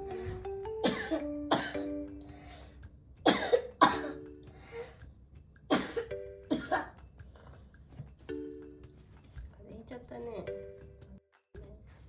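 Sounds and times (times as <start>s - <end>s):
child coughing: 0.8s - 2.0s, 3.2s - 4.3s, 5.7s - 7.0s.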